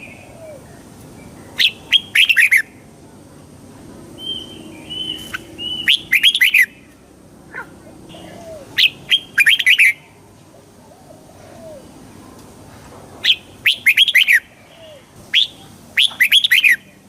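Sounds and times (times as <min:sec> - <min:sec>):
bird singing: 0:00.0 - 0:02.9, 0:04.2 - 0:12.1, 0:13.2 - 0:17.0
soft held bird whistles: 0:04.2 - 0:06.7, 0:13.3 - 0:16.8.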